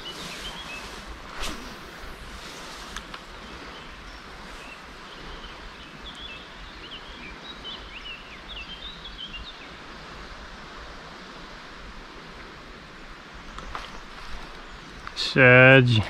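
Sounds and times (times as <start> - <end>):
songbird twittering chirps: 0.0 - 1.2, 2.3 - 9.8, 13.5 - 16.0
outdoor background rush: 0.0 - 16.0.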